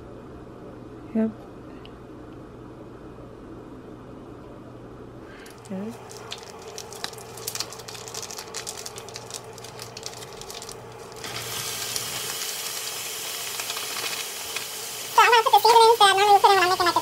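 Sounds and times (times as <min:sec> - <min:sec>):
ground meat sizzling in oil: 0:06.0 - 0:17.0.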